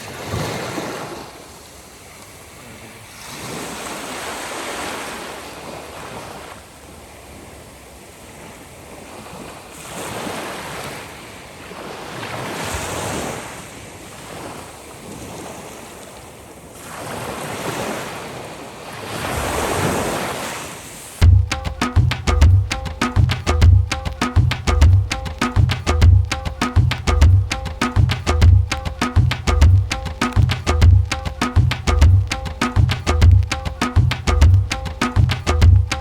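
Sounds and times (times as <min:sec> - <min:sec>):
sea waves washing onto shore: 0:00.0 - 0:21.5.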